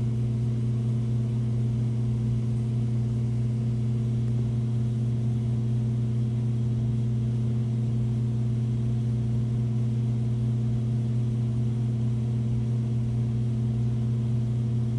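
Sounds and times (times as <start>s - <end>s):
aquarium pump humming: 0.0s - 14.9s.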